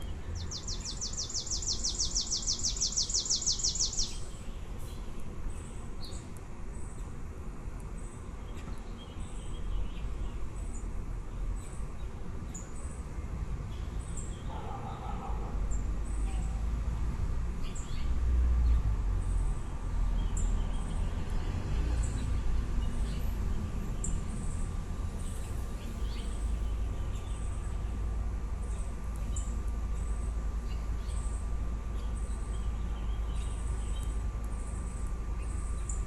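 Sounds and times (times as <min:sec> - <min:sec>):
nestling birds chirping: 0:00.0 - 0:06.2.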